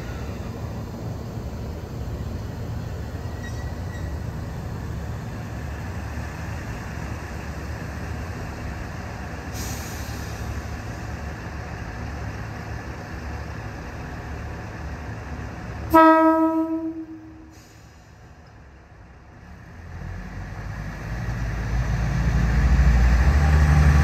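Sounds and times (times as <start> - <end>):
train motors and wheels rumbling: 0.0 - 24.0
air hiss: 9.5 - 11.0, 17.4 - 18.4.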